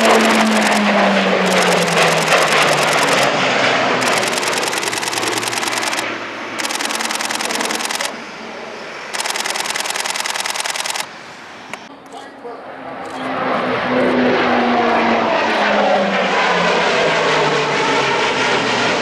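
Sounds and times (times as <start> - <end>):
camera shutter bursts: 0.0 - 0.8, 1.5 - 3.3, 4.0 - 6.0, 6.6 - 8.1, 9.1 - 11.1
turboprop aircraft passing: 0.0 - 19.0.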